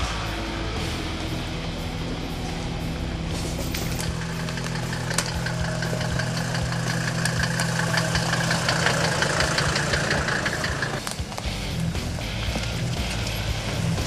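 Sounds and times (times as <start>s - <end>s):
off-road vehicle engine running: 0.0s - 14.0s
sharp clicks and knocks: 3.7s - 11.4s.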